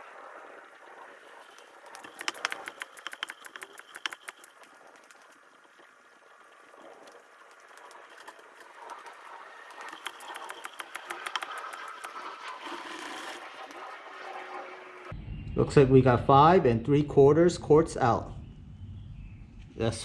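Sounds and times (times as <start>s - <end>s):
oil extractor bubbling slurp: 1.1s - 5.4s.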